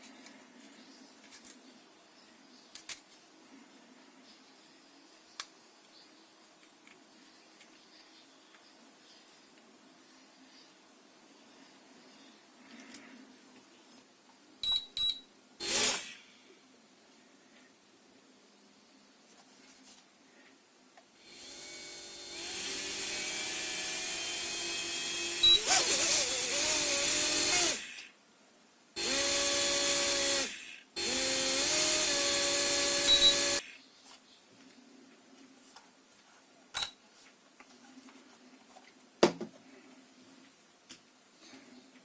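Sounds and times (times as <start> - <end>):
small electric motor whining: 15.6 - 16.2, 21.2 - 28.1, 29.0 - 33.7.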